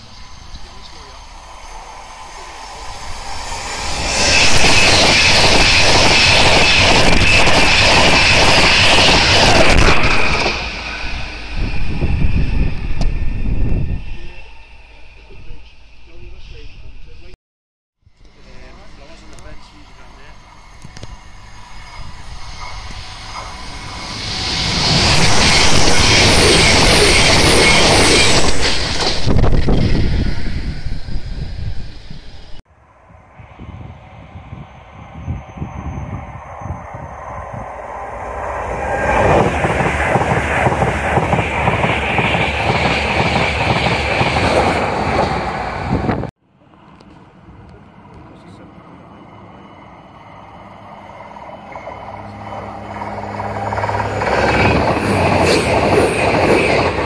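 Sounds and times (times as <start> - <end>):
train wheels on rails: 0.0 - 16.7, 18.2 - 57.0
steady high whine: 0.0 - 17.4, 18.1 - 57.0
thin high squeal: 0.2 - 7.5.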